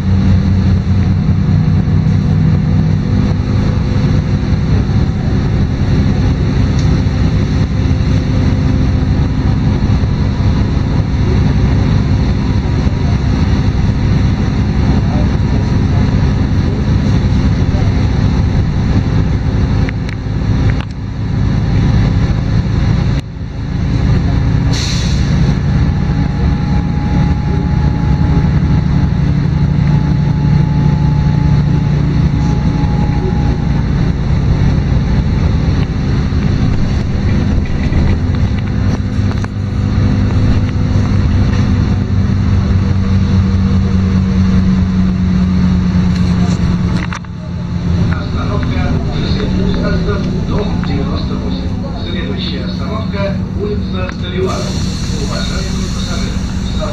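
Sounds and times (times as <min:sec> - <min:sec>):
bus diesel engine drone: 0:00.0 - 0:56.9
air hiss: 0:24.7 - 0:25.4, 0:54.4 - 0:56.9.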